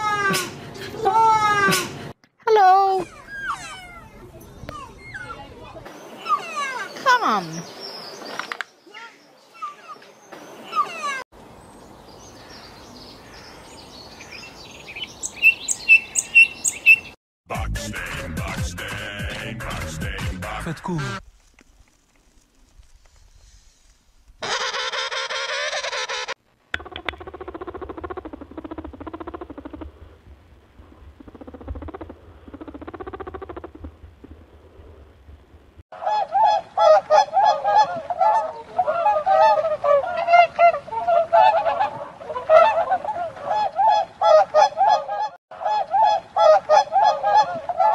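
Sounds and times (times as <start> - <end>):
robin twittering: 12.1 - 17.2
sharp loud bird chirps: 14.3 - 17.2
rabbit pulsing call: 31.1 - 34.4.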